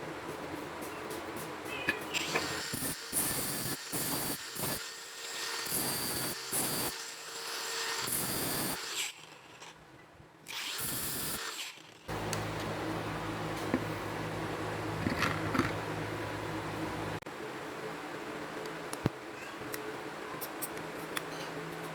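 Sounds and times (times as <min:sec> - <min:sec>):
small power tool running: 0:02.2 - 0:09.5, 0:10.5 - 0:12.9.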